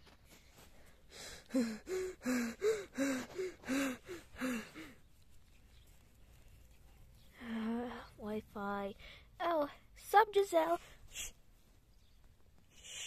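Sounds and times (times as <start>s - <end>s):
person making breathy pitched sounds: 1.2s - 5.0s.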